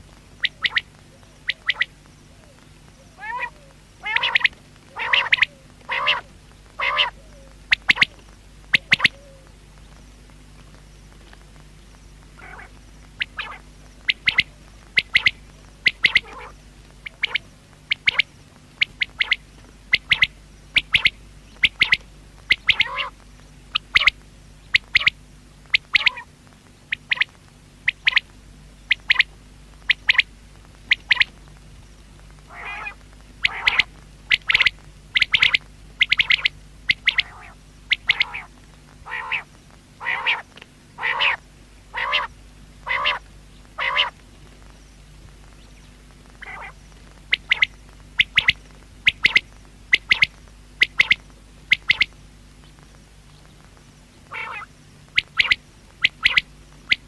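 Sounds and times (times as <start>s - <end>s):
faint steady hum: 0.0s - 57.0s
quail calling: 0.4s - 9.6s, 12.4s - 26.3s, 26.9s - 28.3s, 28.9s - 30.3s, 30.9s - 31.4s, 32.4s - 44.2s, 46.3s - 52.2s, 54.2s - 57.0s.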